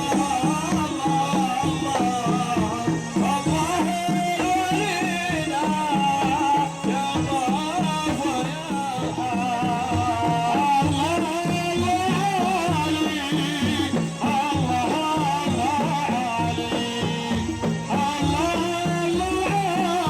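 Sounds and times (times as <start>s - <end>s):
folk band music: 0.0s - 20.0s.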